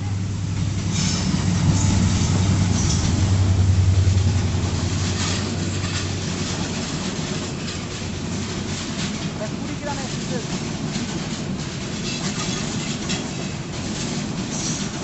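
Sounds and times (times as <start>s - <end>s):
train rumbling past: 0.0s - 15.0s
wheels clicking over rail joints: 4.1s - 15.0s.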